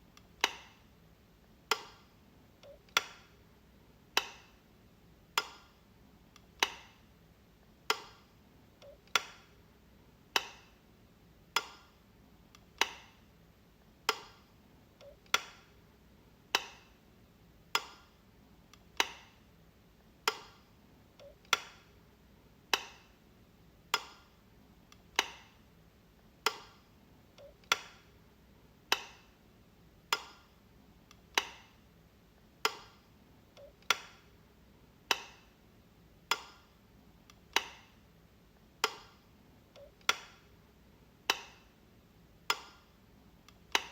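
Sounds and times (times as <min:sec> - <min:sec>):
wall light switch clicking: 0:00.2 - 0:00.8, 0:01.7 - 0:03.4, 0:04.1 - 0:04.6, 0:05.3 - 0:05.8, 0:07.9 - 0:09.6, 0:10.3 - 0:10.8, 0:11.5 - 0:13.2, 0:14.0 - 0:15.7, 0:16.5 - 0:16.9, 0:17.7 - 0:19.4, 0:20.2 - 0:20.6, 0:21.2 - 0:21.9, 0:22.7 - 0:23.2, 0:23.9 - 0:24.3, 0:24.9 - 0:25.6, 0:26.4 - 0:26.8, 0:27.4 - 0:28.2, 0:28.9 - 0:29.4, 0:30.0 - 0:30.5, 0:31.1 - 0:31.8, 0:32.6 - 0:33.0, 0:33.6 - 0:34.3, 0:35.1 - 0:35.5, 0:36.2 - 0:38.0, 0:38.8 - 0:40.5, 0:41.2 - 0:41.7, 0:42.4 - 0:42.9.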